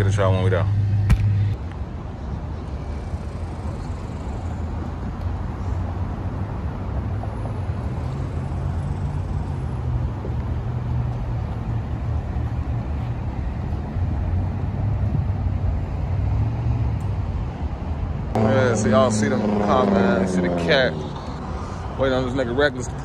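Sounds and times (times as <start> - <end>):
car engine idling: 18.4 - 23.0.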